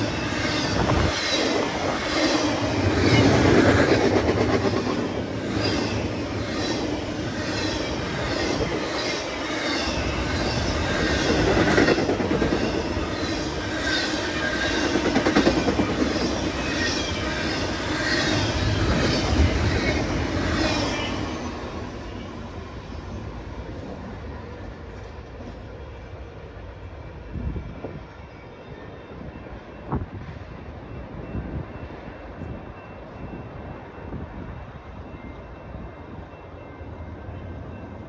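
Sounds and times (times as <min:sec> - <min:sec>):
train wheel squeal: 0:00.0 - 0:38.0.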